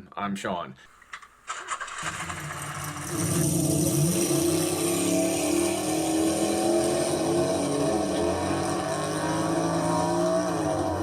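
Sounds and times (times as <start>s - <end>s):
vehicle engine running: 1.5s - 6.3s.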